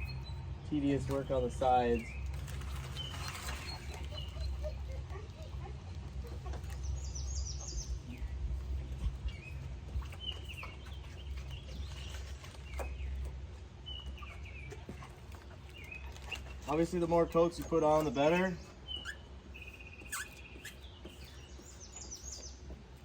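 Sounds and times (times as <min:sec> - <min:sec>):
steady low rumble: 0:00.0 - 0:17.0
birds chirping: 0:00.0 - 0:23.0.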